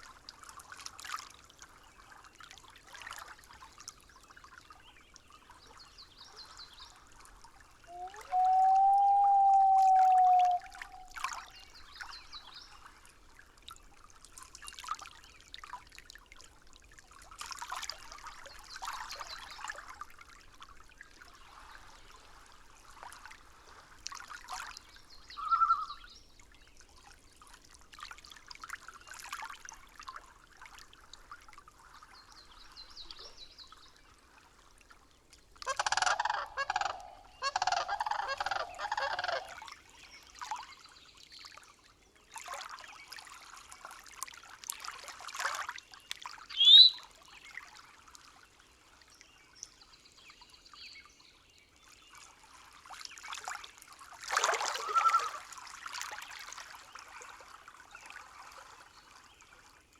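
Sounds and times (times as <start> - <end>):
faint trickling water: 0.0 - 59.9
bird calls: 7.9 - 11.2, 25.4 - 26.1, 35.7 - 39.6, 46.5 - 47.0, 54.7 - 55.4.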